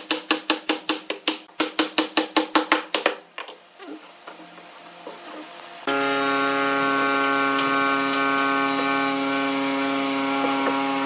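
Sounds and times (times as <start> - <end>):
power tool motor running: 5.2 - 11.0.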